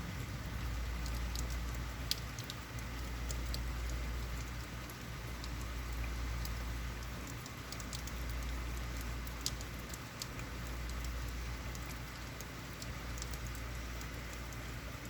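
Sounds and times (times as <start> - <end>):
heavy rain: 0.0 - 2.5
sharp drips: 0.0 - 15.0.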